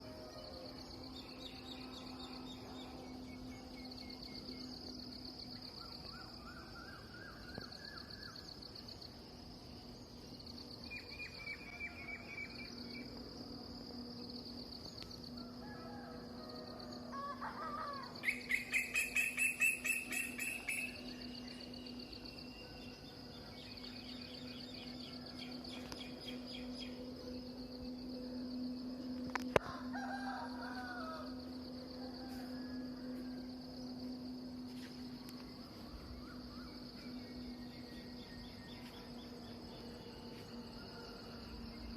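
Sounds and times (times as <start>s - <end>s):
low hum: 0.0s - 41.9s
pulsing high buzz: 18.0s - 41.9s.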